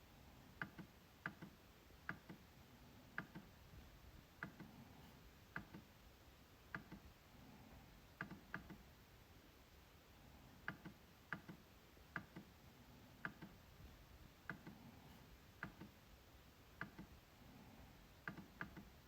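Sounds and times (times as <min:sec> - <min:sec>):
trackpad clicking: 0:03.2 - 0:03.5, 0:06.7 - 0:07.1, 0:08.2 - 0:08.8, 0:13.2 - 0:13.6.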